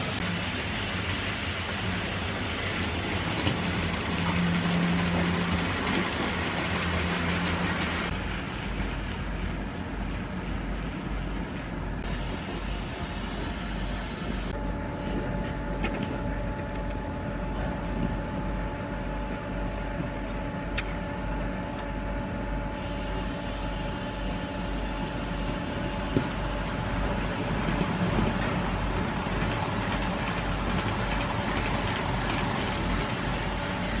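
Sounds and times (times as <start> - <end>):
model locomotive humming: 0.0 - 8.2, 16.0 - 34.0.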